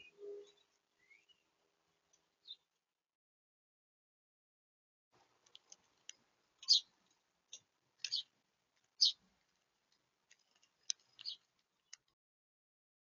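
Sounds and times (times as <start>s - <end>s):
small birds chipping: 0.0s - 2.7s, 5.2s - 12.2s.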